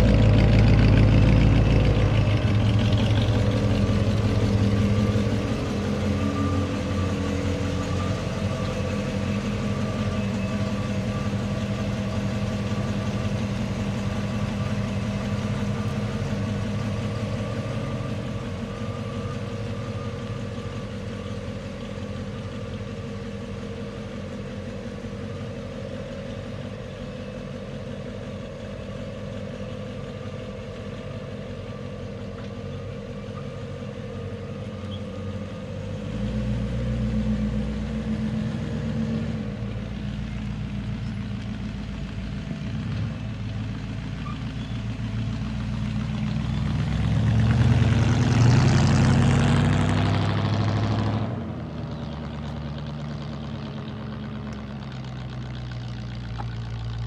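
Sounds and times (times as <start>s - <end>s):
car engine idling: 0.0s - 57.0s
car driving past: 46.0s - 56.3s.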